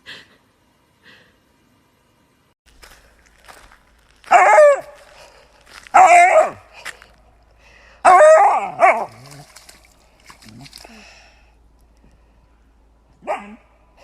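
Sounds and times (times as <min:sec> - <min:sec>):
dog howling: 0:04.3 - 0:05.0, 0:08.0 - 0:09.3.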